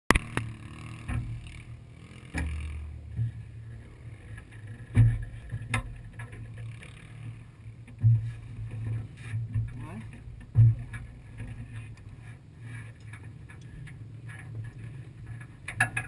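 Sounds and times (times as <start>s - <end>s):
knocks and thumps on car: 9.4s - 11.1s.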